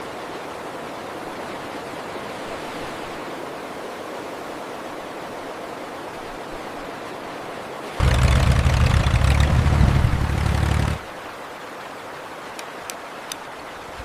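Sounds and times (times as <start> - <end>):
steady rushing noise: 8.0 - 11.2.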